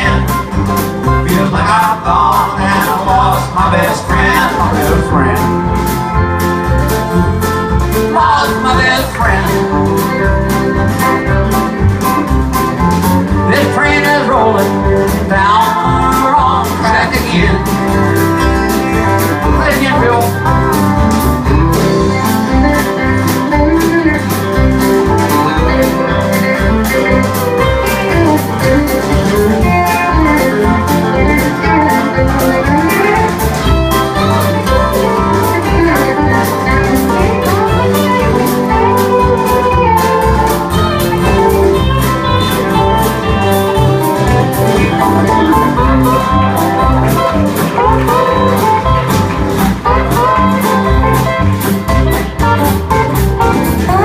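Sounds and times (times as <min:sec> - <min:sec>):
bass and drum beat: 0:00.0 - 0:54.0
lead guitar solo: 0:17.4 - 0:54.0.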